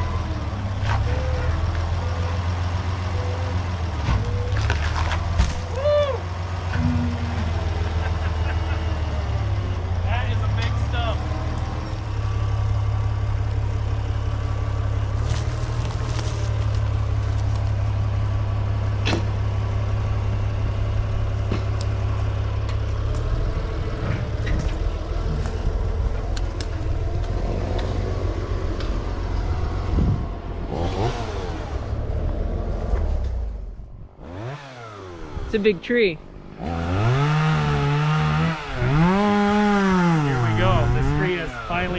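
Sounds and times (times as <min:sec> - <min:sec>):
tractor engine under load: 0:00.0 - 0:41.9
tree wood cracking: 0:04.4 - 0:05.8, 0:15.0 - 0:18.1.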